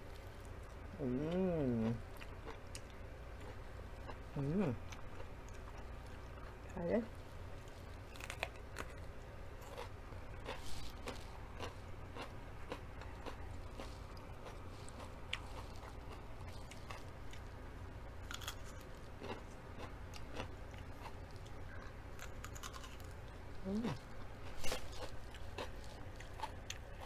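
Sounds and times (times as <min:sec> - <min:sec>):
faint low hum: 0:00.0 - 0:27.0
crunching raw pepper: 0:07.6 - 0:17.6, 0:18.2 - 0:27.0.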